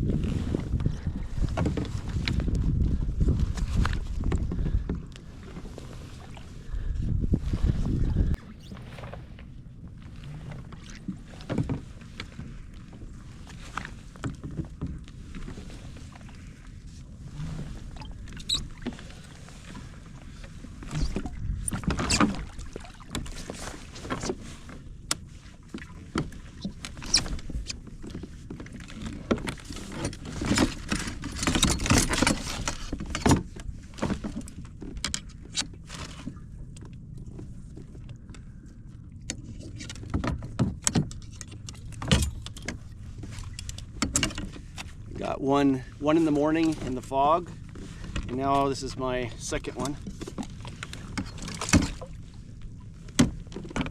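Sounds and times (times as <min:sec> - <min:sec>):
knocks and rattles on kayak: 0:00.0 - 0:53.9
water splashing: 0:20.9 - 0:23.9.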